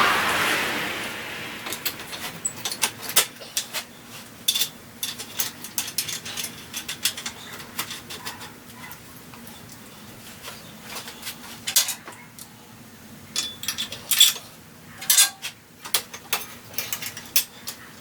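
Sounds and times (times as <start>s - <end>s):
metal tools clinking: 4.4s - 8.5s, 13.4s - 17.8s.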